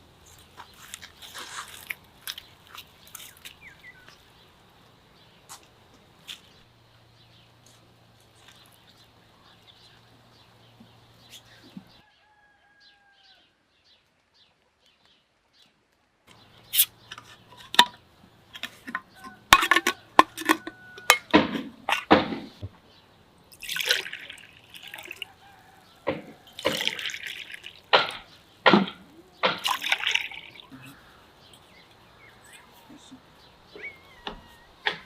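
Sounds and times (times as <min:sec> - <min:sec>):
liquid splashing: 0:23.5 - 0:25.4, 0:26.5 - 0:28.3, 0:29.4 - 0:30.8.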